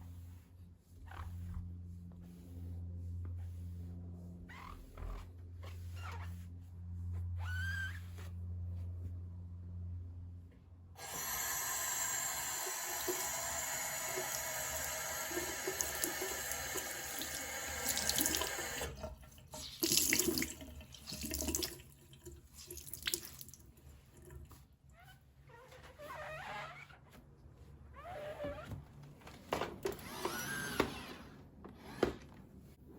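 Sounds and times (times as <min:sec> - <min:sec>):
tap running into sink: 0:15.3 - 0:19.1.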